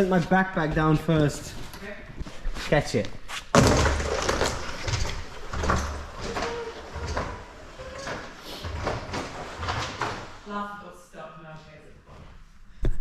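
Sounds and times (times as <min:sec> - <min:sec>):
sliding down plastic slide: 0:03.6 - 0:10.5.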